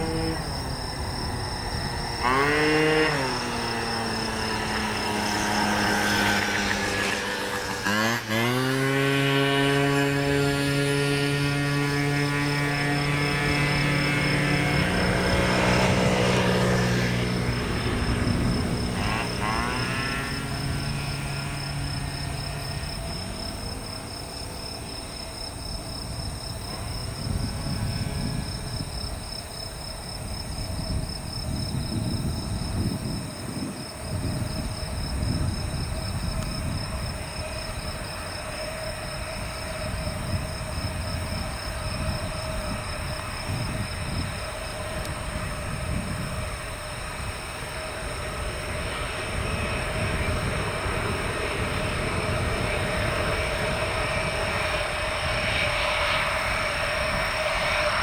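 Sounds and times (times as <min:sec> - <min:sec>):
jet engine whine: 0:00.0 - 0:58.0
jet engine rumble: 0:09.9 - 0:58.0.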